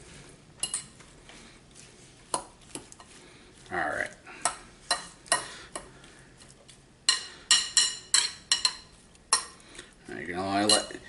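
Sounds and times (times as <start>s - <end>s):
fork clinking in metal bowl: 0.6s - 0.9s, 7.1s - 9.6s, 10.5s - 11.0s.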